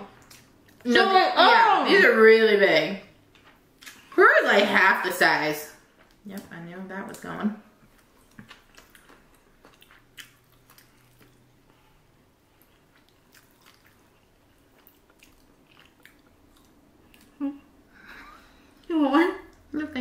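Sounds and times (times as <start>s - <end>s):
people chewing food: 0.0s - 1.0s, 3.2s - 4.2s, 5.8s - 19.8s.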